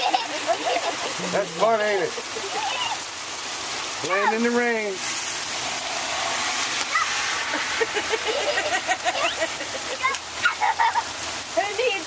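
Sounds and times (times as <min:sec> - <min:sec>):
heavy rain pouring: 0:00.0 - 0:12.0
high-pitched squeals: 0:05.1 - 0:09.9.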